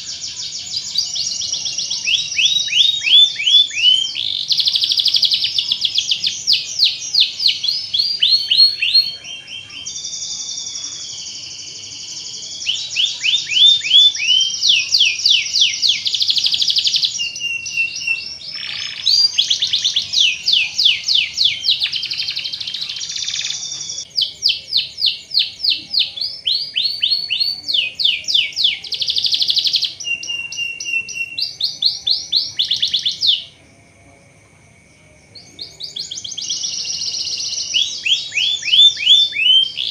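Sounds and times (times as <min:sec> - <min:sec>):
canary singing: 0:00.0 - 0:33.6, 0:35.3 - 0:39.9.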